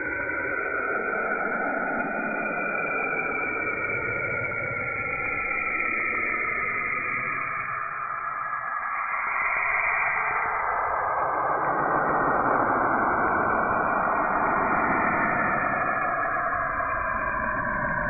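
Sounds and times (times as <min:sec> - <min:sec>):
dense hiss with drifting pitch: 0:09.9 - 0:18.0.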